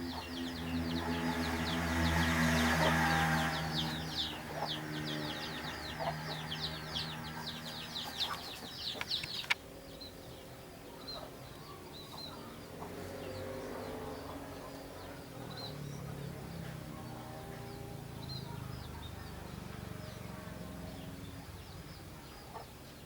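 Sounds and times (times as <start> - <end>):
birds chirping rapidly: 0.0 - 23.0
sharp click: 8.9 - 9.6.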